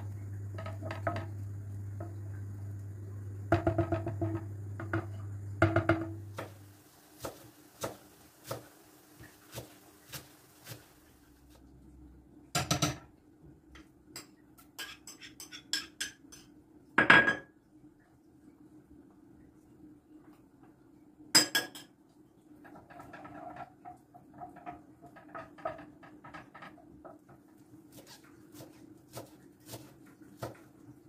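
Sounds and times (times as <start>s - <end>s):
dishes and cutlery clattering: 14.2s - 16.5s.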